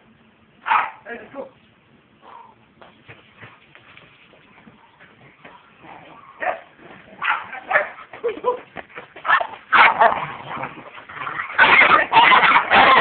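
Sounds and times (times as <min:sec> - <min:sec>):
dogs barking and yipping: 0:00.6 - 0:01.0, 0:04.6 - 0:13.0.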